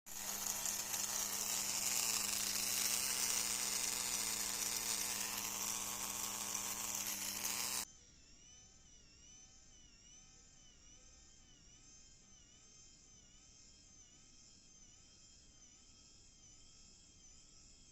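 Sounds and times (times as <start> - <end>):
small electric motor whirring: 0.0 - 7.9.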